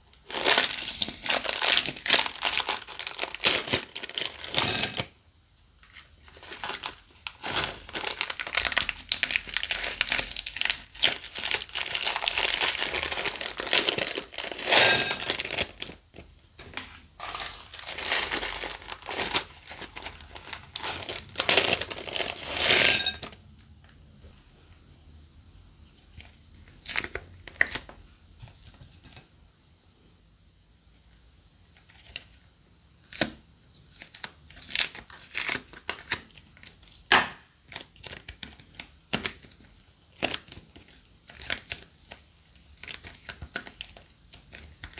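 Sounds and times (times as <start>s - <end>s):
plastic bags crinkling and tearing: 0.2s - 5.1s, 5.8s - 23.3s, 37.6s - 44.9s.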